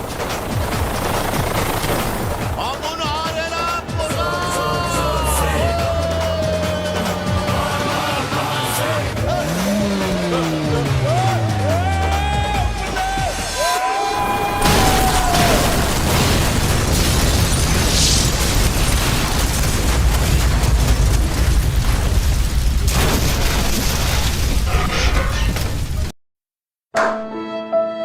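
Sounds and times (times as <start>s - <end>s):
loud explosion with heavy rumble: 14.2s - 26.1s.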